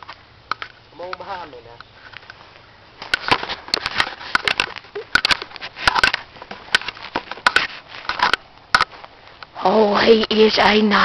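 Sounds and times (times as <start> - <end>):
footsteps through dry brush: 1.2 - 9.5
twigs snapping: 3.0 - 10.4.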